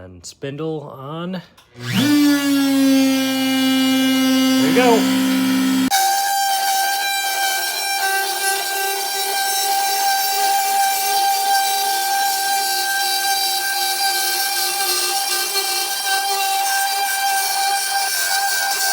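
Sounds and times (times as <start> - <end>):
router spindle high whine: 1.8 - 6.1.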